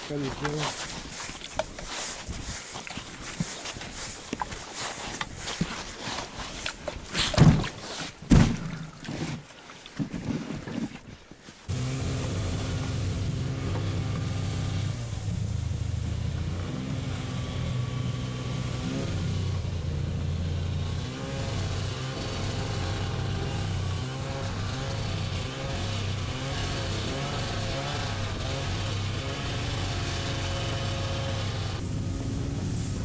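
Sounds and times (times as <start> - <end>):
vehicle engine revving: 11.7 - 33.0.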